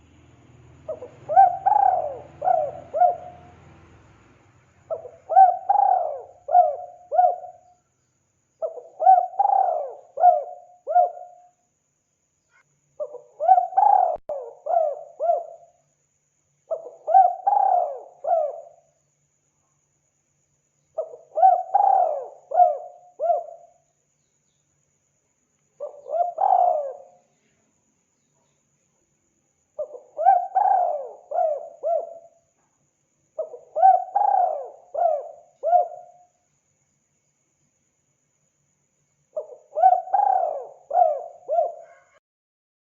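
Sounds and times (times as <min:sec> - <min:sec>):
dove cooing: 0:00.8 - 0:03.6, 0:04.9 - 0:07.7, 0:08.6 - 0:11.5, 0:13.0 - 0:15.8, 0:16.7 - 0:18.9, 0:21.0 - 0:23.7, 0:25.8 - 0:27.3, 0:29.8 - 0:32.4, 0:33.4 - 0:36.3, 0:39.4 - 0:42.2.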